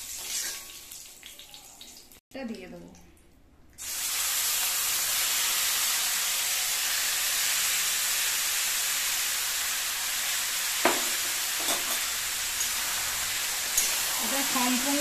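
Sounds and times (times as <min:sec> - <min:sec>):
chicken sizzling in hot oil: 0:03.8 - 0:15.0.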